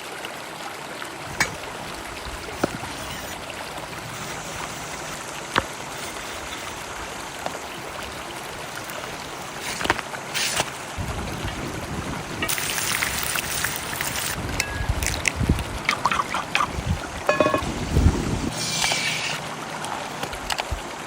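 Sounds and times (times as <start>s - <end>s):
river flowing: 0.0s - 21.0s
loud hiss: 18.5s - 19.4s.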